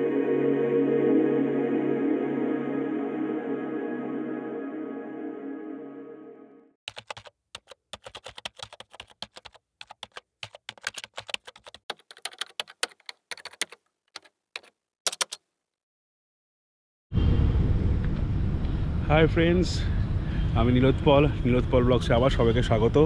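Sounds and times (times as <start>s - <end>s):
ambient music: 0.0s - 6.8s
computer keyboard typing: 6.9s - 15.4s.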